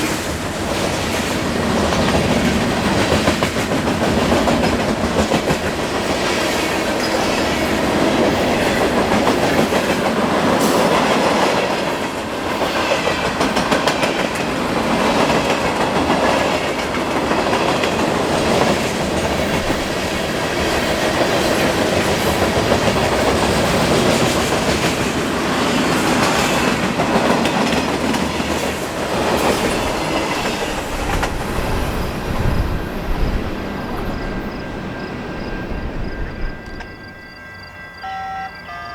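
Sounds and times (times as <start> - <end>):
train wheels clicking over rail joints: 0.0 - 37.2
train wheel and rail noise: 0.0 - 38.9.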